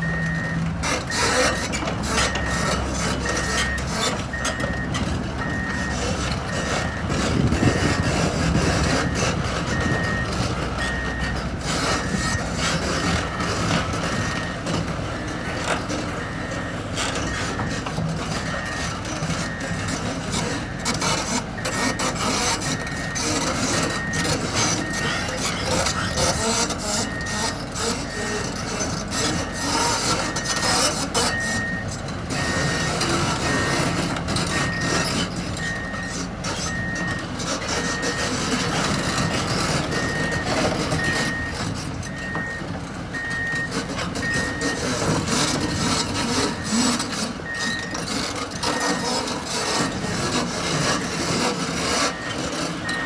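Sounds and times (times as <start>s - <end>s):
excavator diesel engine: 0.0s - 53.0s
gritty scraping and clatter: 0.6s - 53.0s
motion alarm beeping: 43.2s - 44.9s, 52.1s - 53.0s.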